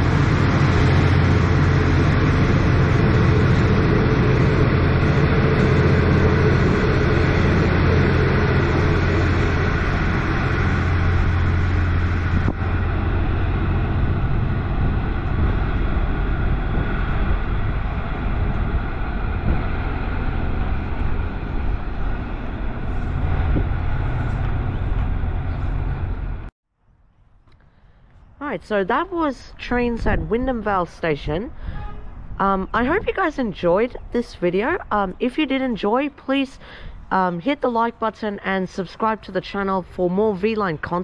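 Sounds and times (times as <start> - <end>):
diesel train running: 0.0 - 26.5.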